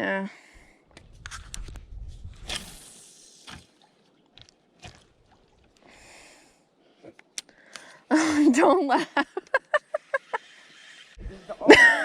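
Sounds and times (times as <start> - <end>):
soft breathy rush: 5.8 - 8.3.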